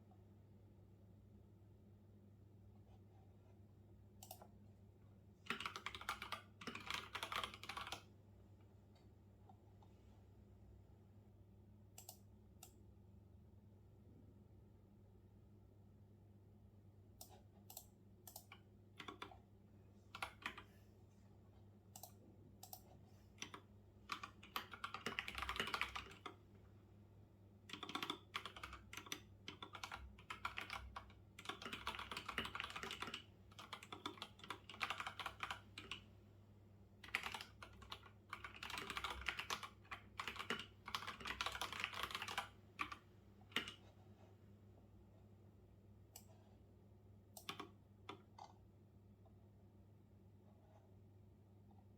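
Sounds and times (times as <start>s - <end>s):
typing on computer keyboard: 5.5s - 8.1s, 17.2s - 19.4s, 20.1s - 20.7s, 22.0s - 26.4s, 27.7s - 36.0s, 37.0s - 43.9s, 47.4s - 48.6s.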